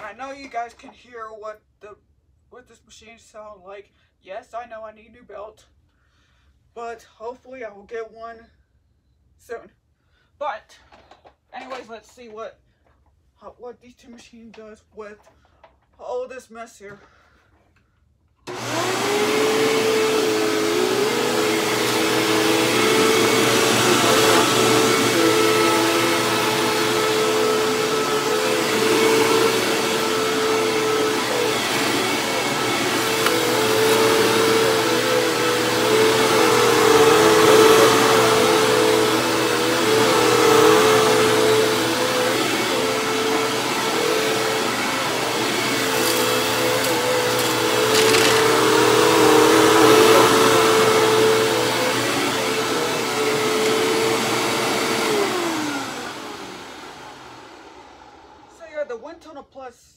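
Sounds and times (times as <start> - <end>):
vacuum cleaner running: 18.5 - 58.8.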